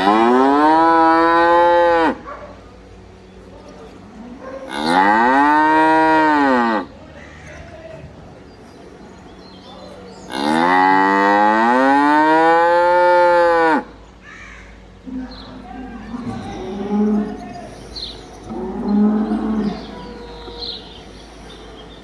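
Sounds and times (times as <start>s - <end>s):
cow mooing: 0.0s - 2.2s, 4.6s - 6.9s, 10.3s - 14.0s, 15.0s - 17.6s, 18.4s - 21.7s.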